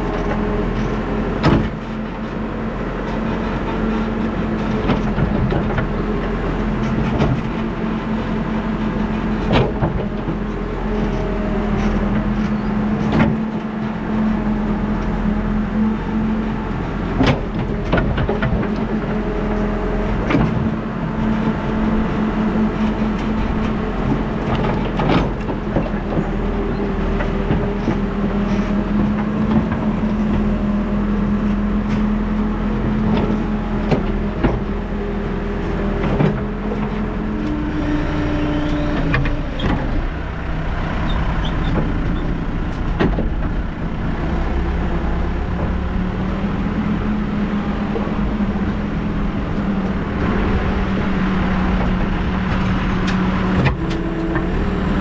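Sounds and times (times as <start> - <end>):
diesel engine running under load: 0.0 - 55.0
sharp knocks and clanks: 41.6 - 43.7.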